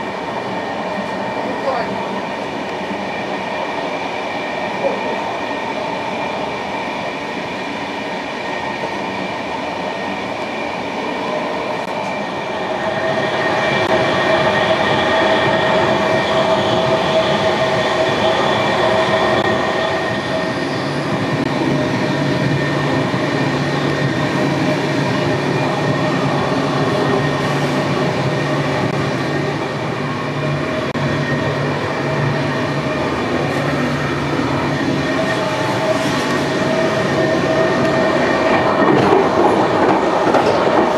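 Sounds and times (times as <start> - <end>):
rail noise: 0.0 - 40.9
train whine: 0.0 - 40.9.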